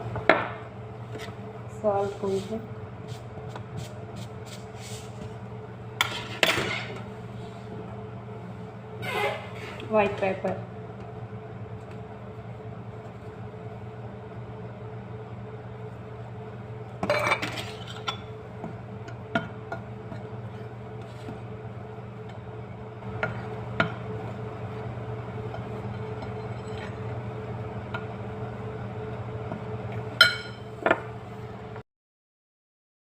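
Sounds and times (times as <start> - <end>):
steady low hum: 0.0 - 31.8
dishes and utensils clinking: 30.2 - 31.0.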